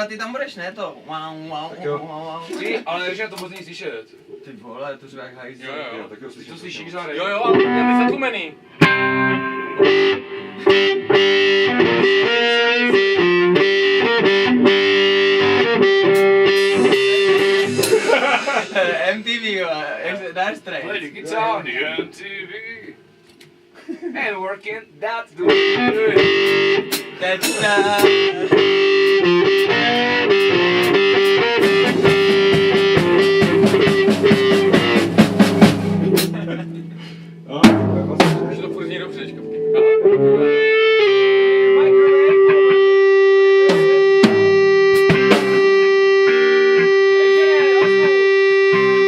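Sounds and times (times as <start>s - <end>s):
distorted electric guitar notes: 7.5s - 19.2s, 25.4s - 49.0s
steady ticking beat: 25.5s - 41.0s.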